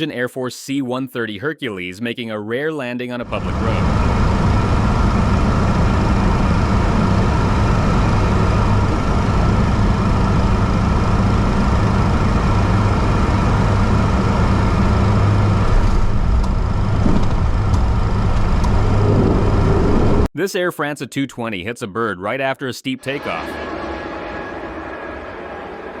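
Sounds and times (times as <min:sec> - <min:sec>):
deep propeller hum: 0:03.2 - 0:20.3.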